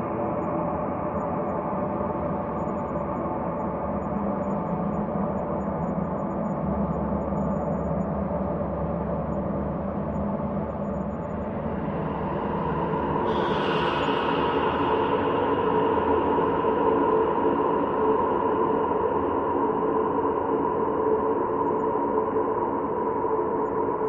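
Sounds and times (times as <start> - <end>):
ambient drone of low tones: 10.5 - 22.2.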